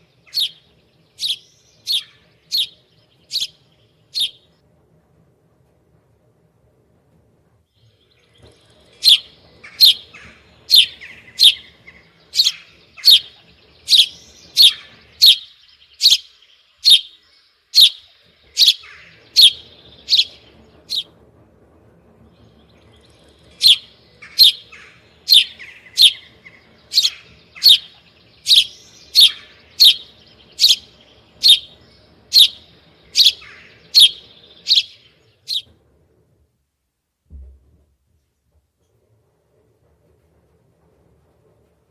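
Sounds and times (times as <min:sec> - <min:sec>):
soft bird chirping: 0:00.0 - 0:04.5, 0:07.8 - 0:21.1, 0:22.9 - 0:35.7
bird calling sharp high notes: 0:04.2 - 0:04.4, 0:13.9 - 0:17.2, 0:17.8 - 0:21.1, 0:25.3 - 0:26.3, 0:26.9 - 0:27.9, 0:28.5 - 0:35.7.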